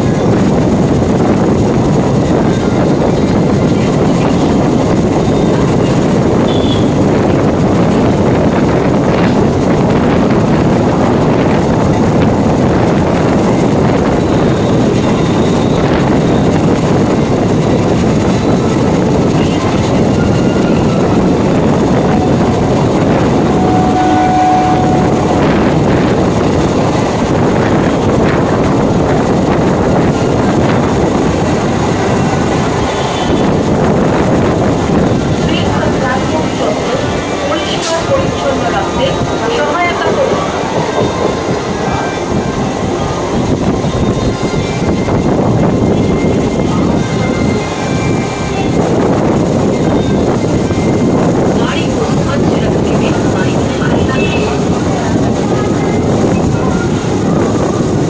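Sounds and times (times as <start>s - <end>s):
train wheels on track: 0.0s - 58.0s
short tone: 22.0s - 25.9s.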